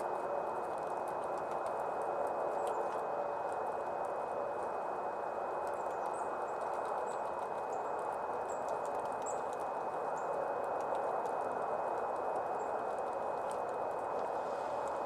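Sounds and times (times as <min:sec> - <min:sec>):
rain hissing: 0:12.9 - 0:15.0.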